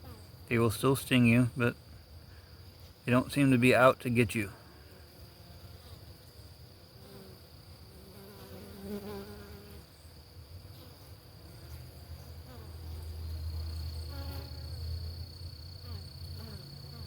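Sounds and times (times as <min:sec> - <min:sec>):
bees buzzing: 0:06.9 - 0:10.1.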